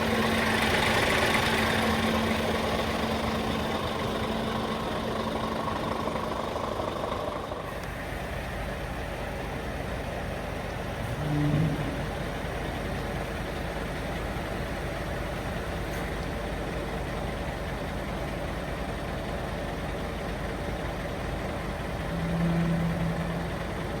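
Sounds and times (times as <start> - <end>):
diesel truck engine idling: 0.0 - 24.0
humming tones: 11.0 - 12.5, 22.0 - 24.0.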